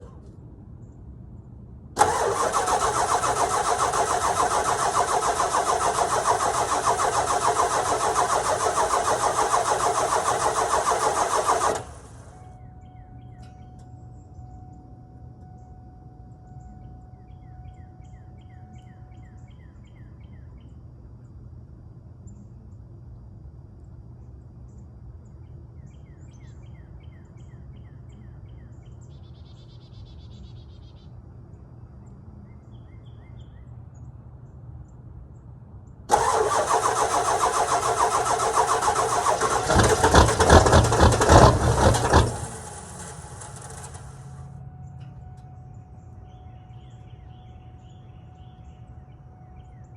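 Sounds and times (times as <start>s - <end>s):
low hum: 0.0s - 25.5s, 35.7s - 49.9s
diesel engine starting and idling: 2.0s - 12.5s, 36.1s - 44.7s.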